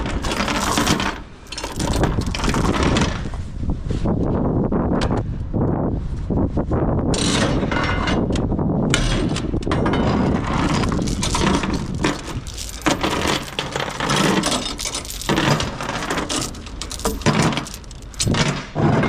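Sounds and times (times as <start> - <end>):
ratchet strap clicking and rattling: 0.0 - 2.9, 10.5 - 18.5
wind buffeting microphone: 1.3 - 19.0.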